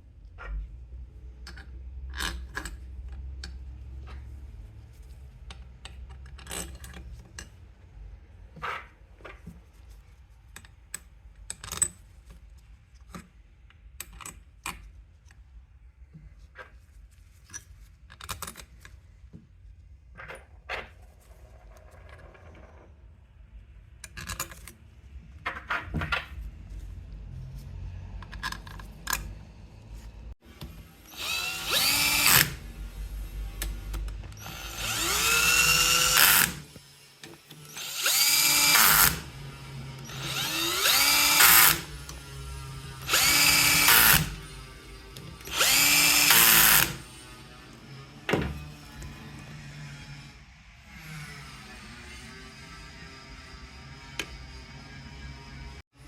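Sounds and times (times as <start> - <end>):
electric power drill: 30.6 - 55.8.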